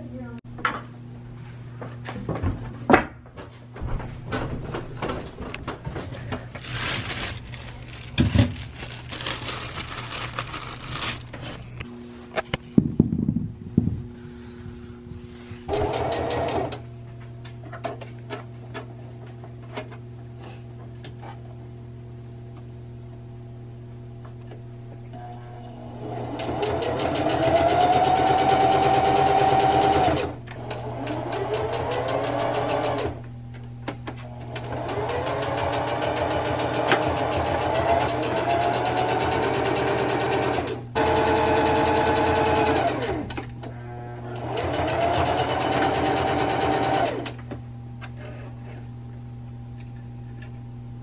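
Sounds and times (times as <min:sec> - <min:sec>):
low steady hum: 0:00.0 - 0:15.7, 0:47.4 - 0:51.0.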